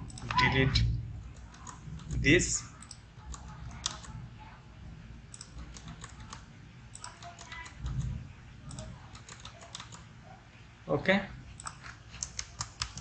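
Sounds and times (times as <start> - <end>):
steady low hum: 0.0 - 13.0
keyboard keys clicking: 1.3 - 2.2, 2.8 - 4.2, 5.3 - 8.1, 8.7 - 10.1, 11.6 - 13.0.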